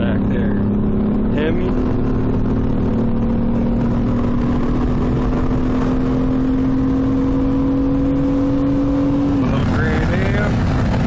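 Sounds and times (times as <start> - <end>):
car engine at full throttle: 0.0 - 11.0
steady rushing noise: 9.2 - 11.0.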